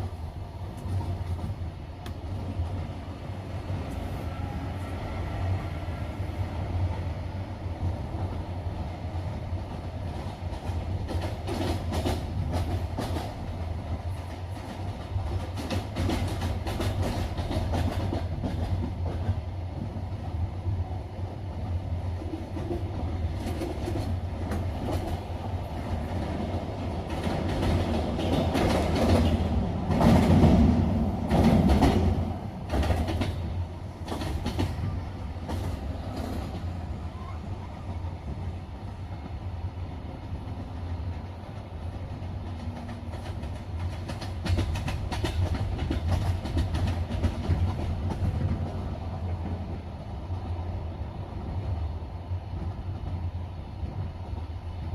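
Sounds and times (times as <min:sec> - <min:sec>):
train rumbling on rails: 0:00.0 - 0:54.9
wheels clicking over rail joints: 0:10.2 - 0:19.9, 0:22.2 - 0:36.7, 0:40.5 - 0:49.6.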